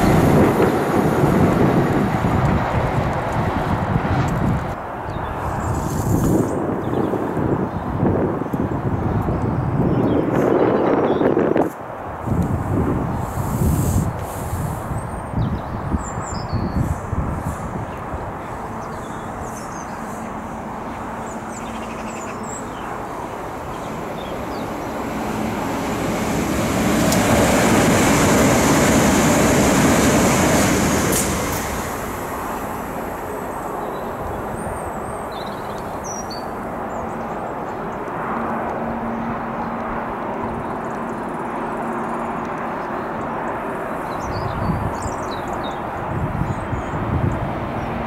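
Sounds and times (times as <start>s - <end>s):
electric train passing: 0.0s - 5.6s, 16.8s - 38.9s.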